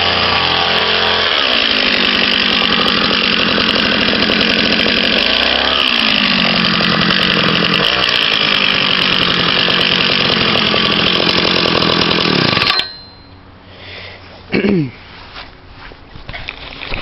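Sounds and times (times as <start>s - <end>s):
small two-stroke engine revving: 0.0s - 12.7s.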